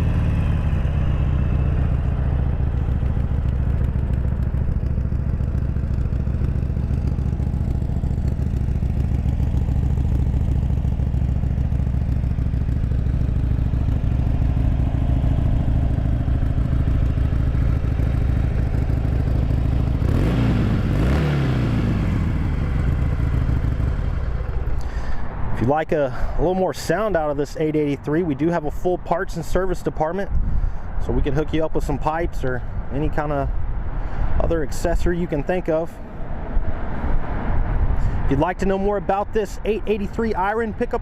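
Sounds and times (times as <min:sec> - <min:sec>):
motorcycle engine revving: 0:00.0 - 0:24.8
motorcycle engine idling: 0:00.0 - 0:25.4.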